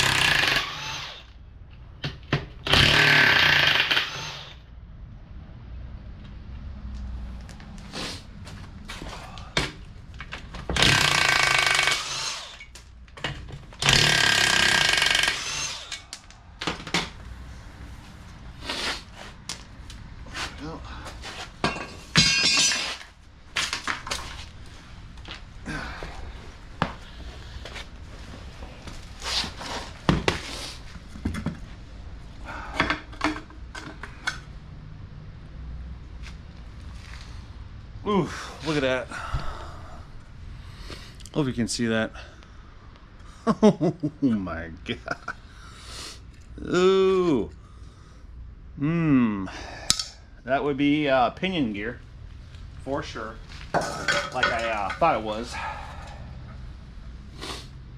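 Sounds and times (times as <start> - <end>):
impact wrench spinning bolts: 0.0 - 1.3, 2.6 - 4.6, 10.7 - 12.8, 13.8 - 16.1
tools clinking and knocking: 21.6 - 23.1, 49.9 - 50.2, 53.7 - 55.1.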